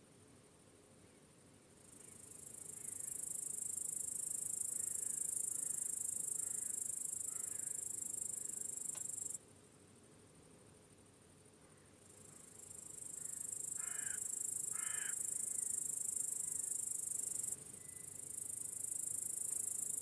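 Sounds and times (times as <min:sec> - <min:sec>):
faint background hiss: 0:00.0 - 0:20.0
cricket trilling: 0:01.8 - 0:09.4, 0:12.0 - 0:20.0.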